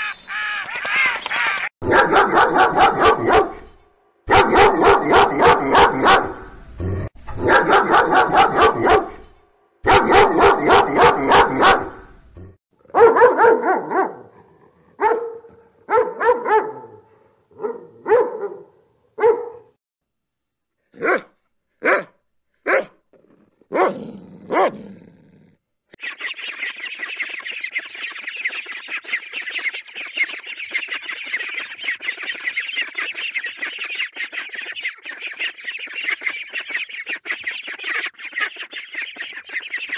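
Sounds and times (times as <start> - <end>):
ducks and ducklings calling: 0.0 - 1.7, 26.0 - 39.9
dog barking: 1.8 - 6.5, 7.4 - 12.1, 12.9 - 19.8, 21.0 - 23.0, 23.7 - 24.8.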